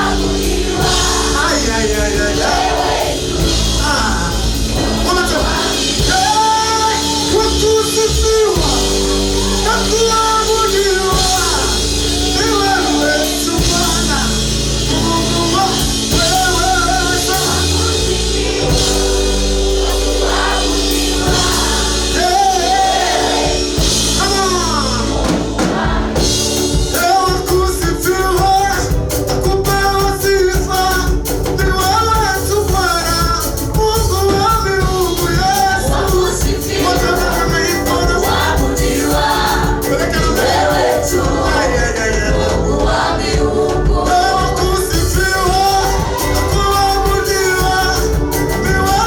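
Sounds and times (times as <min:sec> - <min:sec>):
group singing gospel music: 0:00.0 - 0:49.0
instrumental backing: 0:00.0 - 0:49.0
quick percussive beat: 0:09.9 - 0:49.0.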